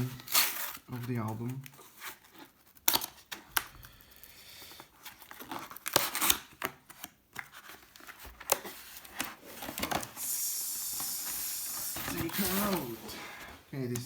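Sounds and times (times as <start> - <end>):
packaging rustling and crinkling: 4.8 - 14.0.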